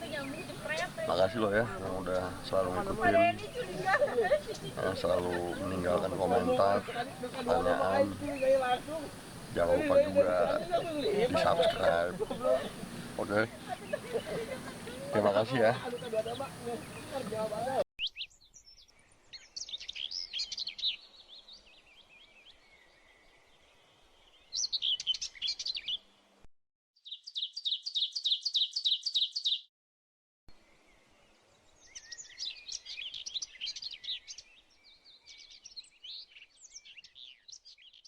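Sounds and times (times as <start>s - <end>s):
bird trill: 0.0s - 21.1s
songbirds chirping: 0.0s - 26.4s, 27.0s - 29.6s, 30.6s - 38.0s.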